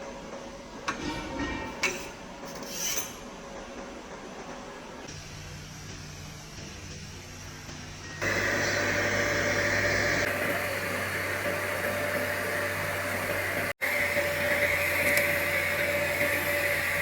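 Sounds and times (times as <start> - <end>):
welding machine hissing hum: 4.8 - 17.0.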